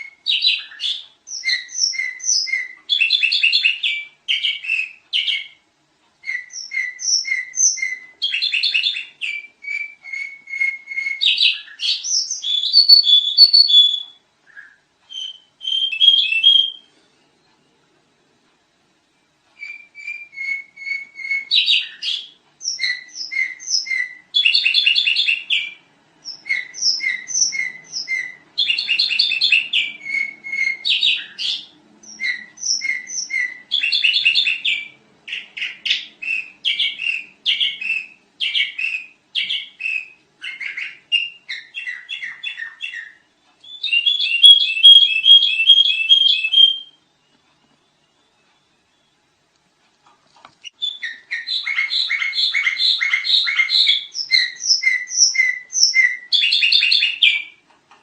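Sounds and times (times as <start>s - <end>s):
bird singing chattering phrases: 6.3s - 16.9s, 19.6s - 47.0s, 50.7s - 57.6s.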